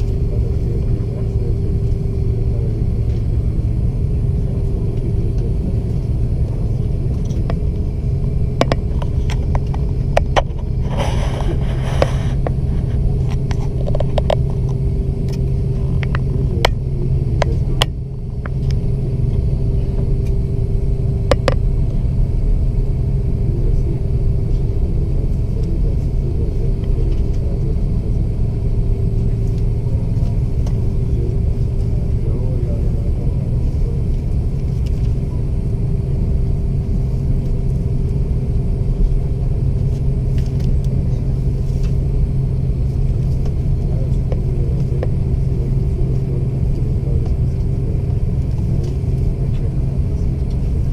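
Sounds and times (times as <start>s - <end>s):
aircraft cabin engine rumble: 0.0s - 50.9s
sharp clicks and knocks: 21.3s - 21.6s.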